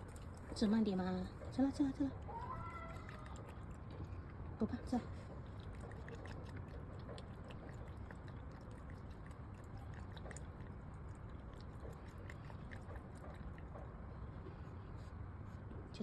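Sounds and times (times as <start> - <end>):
cat crunching dry kibble: 3.0 - 13.9.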